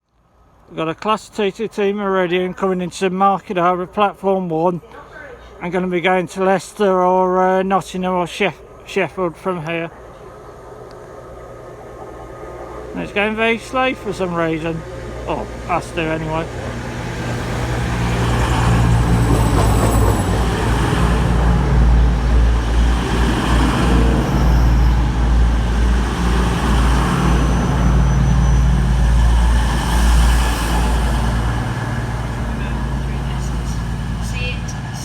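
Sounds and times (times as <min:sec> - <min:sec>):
train diesel engines droning: 0:00.4 - 0:35.0
high-pitched squeals: 0:26.8 - 0:35.0.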